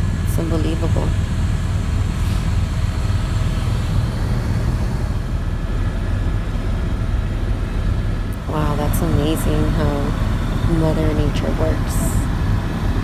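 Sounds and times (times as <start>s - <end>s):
helicopter rotor and engine drone: 0.0s - 13.0s
noisy rush: 0.0s - 13.0s.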